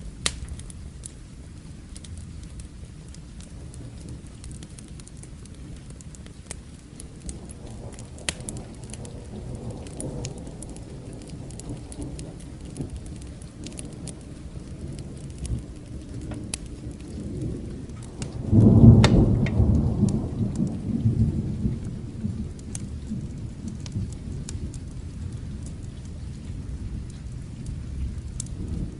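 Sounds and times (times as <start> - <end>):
steady rain: 0.0 - 28.9
wood fire crackling: 0.0 - 28.9
low rolling thunder: 1.6 - 28.9
loud thunderclap: 7.2 - 25.4, 27.8 - 28.9.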